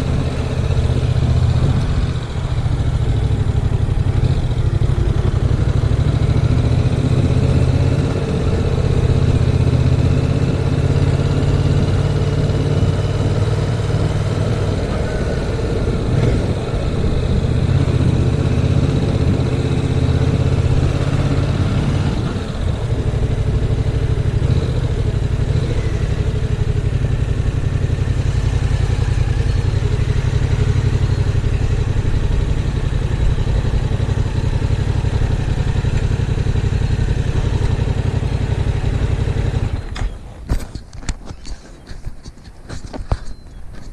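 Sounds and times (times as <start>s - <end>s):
motorcycle engine running: 0.0s - 41.9s
wind noise on microphone: 1.4s - 2.9s, 10.4s - 19.7s.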